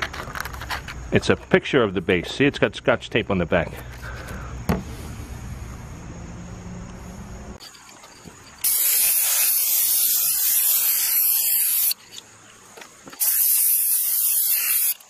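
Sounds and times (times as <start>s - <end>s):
aerosol spray can hissing: 8.6s - 12.0s, 13.1s - 15.0s.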